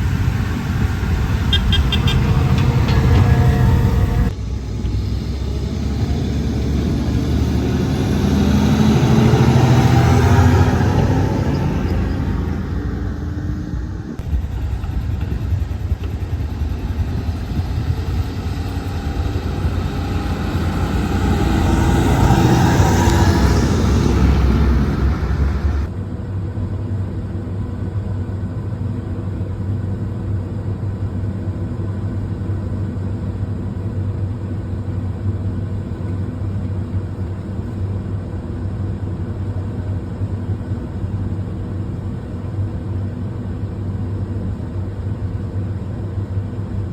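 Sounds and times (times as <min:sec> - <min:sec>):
tractor engine running under load: 0:00.0 - 0:25.9.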